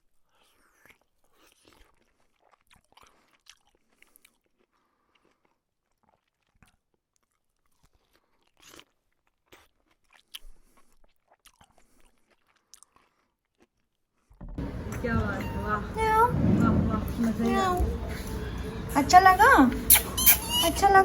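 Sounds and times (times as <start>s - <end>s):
cat chewing: 14.6s - 19.0s.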